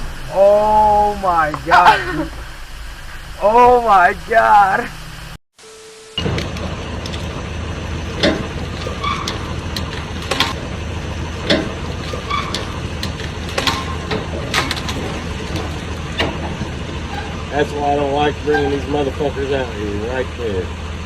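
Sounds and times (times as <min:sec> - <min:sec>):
vehicle engine humming: 0:00.0 - 0:21.0
sharp clicks and knocks: 0:06.2 - 0:17.6.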